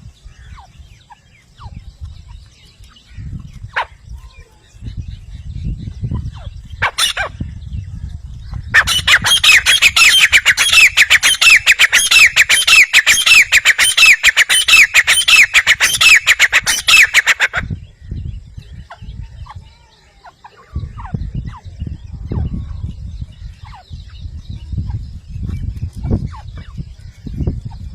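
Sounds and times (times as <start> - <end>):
francolin calling: 8.6 - 25.5
low rumble: 20.8 - 27.9.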